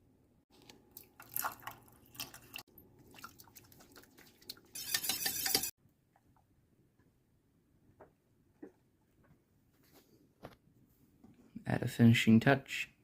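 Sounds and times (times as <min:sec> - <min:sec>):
spoon stirring in a pot: 0:03.2 - 0:05.7.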